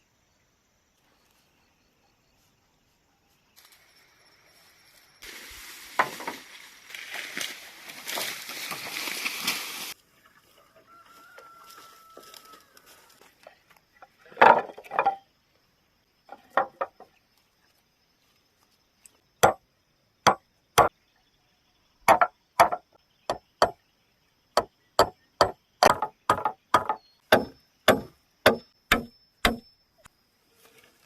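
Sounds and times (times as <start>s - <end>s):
chopping blows on bamboo: 22.1s - 23.8s, 24.6s - 29.7s.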